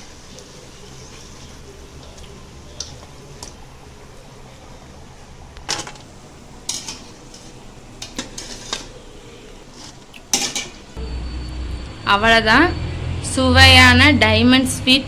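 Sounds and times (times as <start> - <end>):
metal utensils clinking on pan: 5.7 - 9.0, 9.7 - 11.0.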